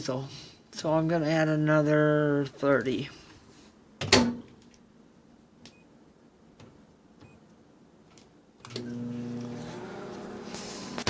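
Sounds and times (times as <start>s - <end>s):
microwave humming: 8.6s - 11.0s.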